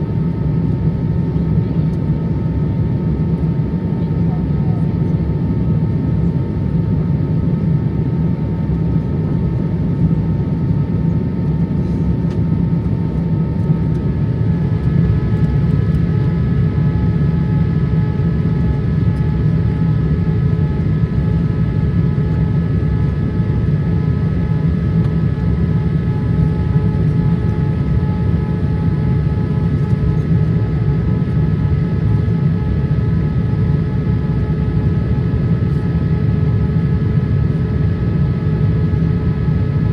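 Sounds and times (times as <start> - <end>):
airliner cabin noise: 11.1 - 39.9.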